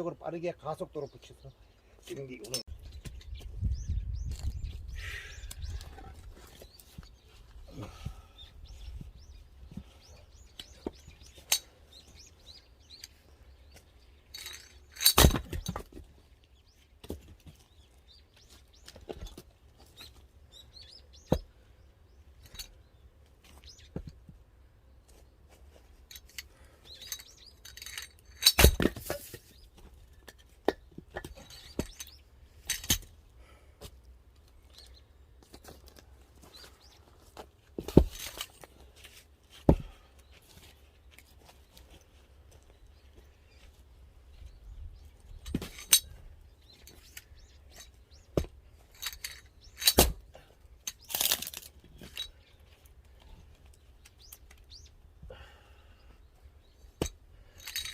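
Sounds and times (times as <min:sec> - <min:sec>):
wood pieces knocking and clinking: 0:13.0 - 0:16.1, 0:26.1 - 0:33.1, 0:37.8 - 0:39.9, 0:45.3 - 0:50.2, 0:50.8 - 0:52.4, 0:57.0 - 0:57.9
axe splitting firewood: 0:15.0 - 0:16.0, 0:28.4 - 0:29.6, 0:37.7 - 0:38.8, 0:39.6 - 0:40.0, 0:45.4 - 0:46.2, 0:49.8 - 0:52.2.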